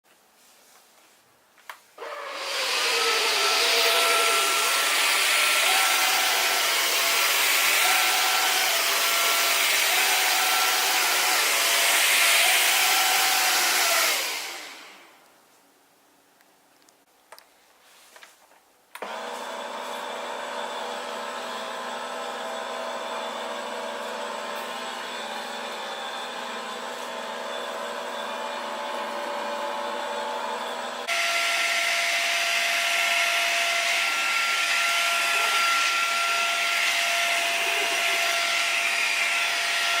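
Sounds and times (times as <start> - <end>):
vacuum cleaner motor whining: 2.0 - 15.3, 19.0 - 40.0.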